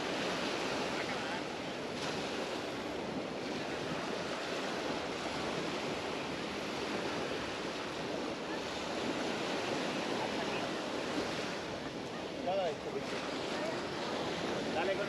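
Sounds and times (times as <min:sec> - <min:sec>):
waves washing onto beach: 0:00.0 - 0:15.0.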